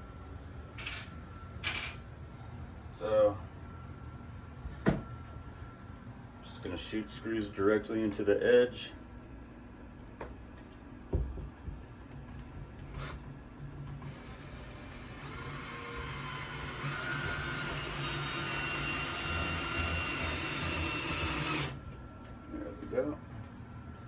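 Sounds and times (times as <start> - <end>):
light knocks on wood: 4.8 - 5.1, 11.1 - 11.8
power drill driving a screw: 13.9 - 21.8.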